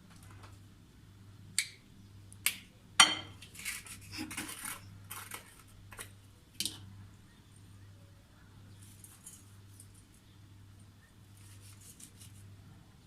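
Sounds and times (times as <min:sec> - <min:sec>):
dishes and utensils clinking: 0:03.0 - 0:03.4.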